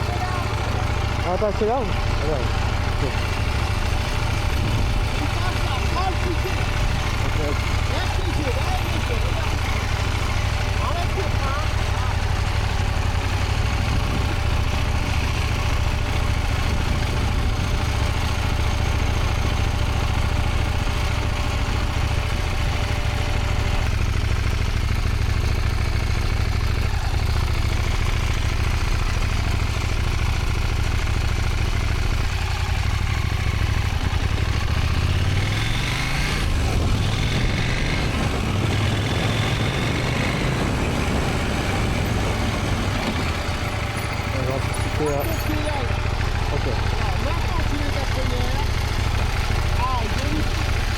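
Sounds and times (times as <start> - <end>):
motorcycle engine rumbling: 0.0 - 50.9.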